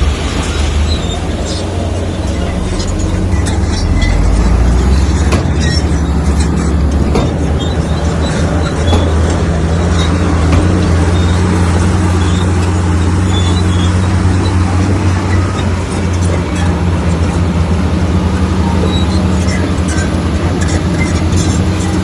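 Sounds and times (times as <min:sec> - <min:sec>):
diesel machine engine hum: 0:00.0 - 0:22.0
sharp metallic knocks: 0:01.0 - 0:16.8.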